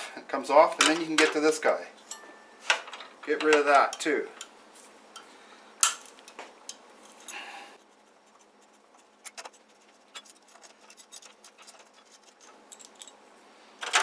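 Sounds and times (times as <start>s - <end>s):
small parts clicking and scraping: 2.0s - 7.4s, 9.0s - 13.2s, 13.8s - 14.0s.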